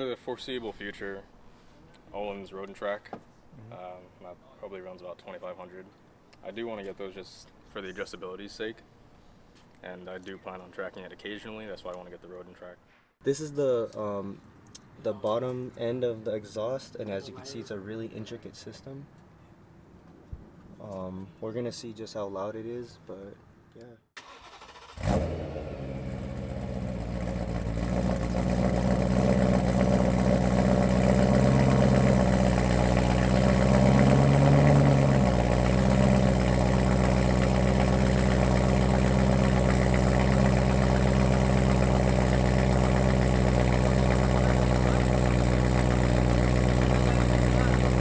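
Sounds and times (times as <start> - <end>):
loud engine starting and idling: 24.2 - 48.0.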